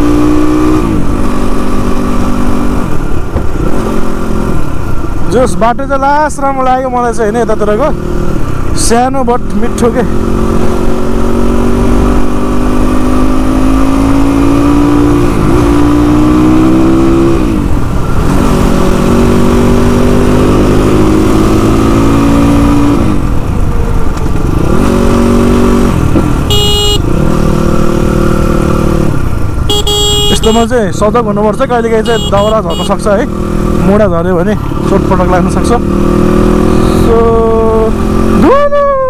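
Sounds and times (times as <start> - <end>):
motorcycle engine accelerating: 0.0 - 39.0
short horn beep: 26.5 - 27.1, 29.7 - 30.7, 32.0 - 33.0, 36.7 - 37.2.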